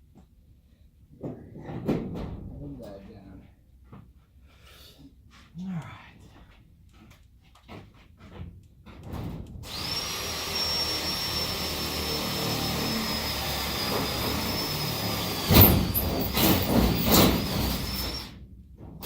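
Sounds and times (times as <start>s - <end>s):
power drill whining: 9.6s - 18.4s
drill bit grinding and scraping: 9.7s - 18.4s.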